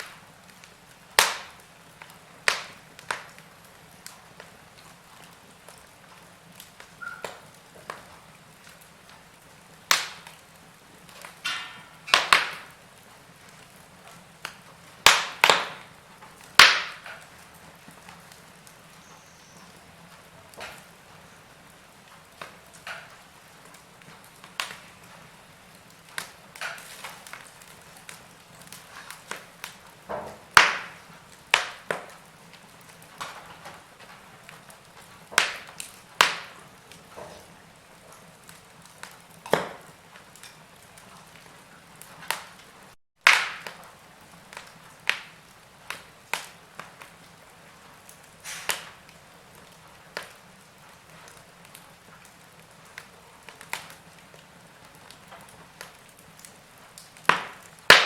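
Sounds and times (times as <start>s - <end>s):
faint steady hiss: 0.0s - 43.0s
wood fire crackling and popping: 0.0s - 58.0s.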